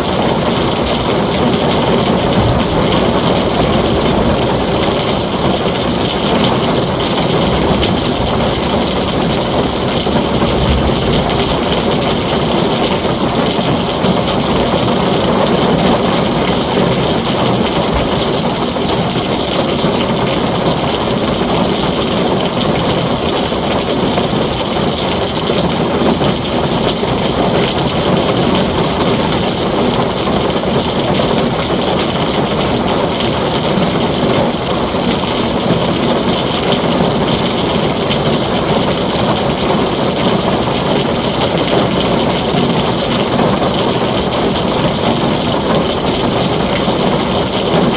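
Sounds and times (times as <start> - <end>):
heavy rain on a tin roof: 0.0 - 47.9.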